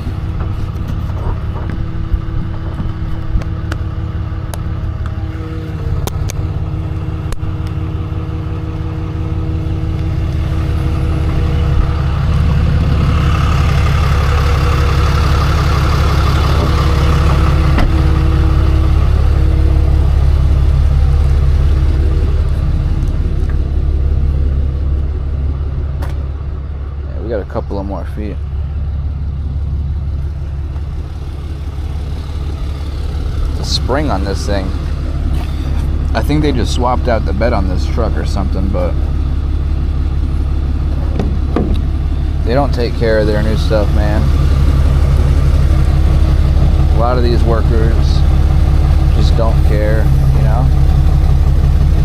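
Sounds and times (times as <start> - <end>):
truck engine running: 0.0 - 52.0.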